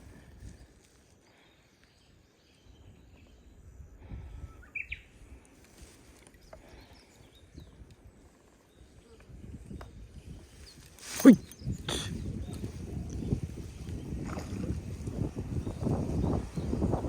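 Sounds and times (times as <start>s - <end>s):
bird chirp: 1.4s - 5.2s
wind buffeting microphone: 2.7s - 5.4s, 7.2s - 17.0s.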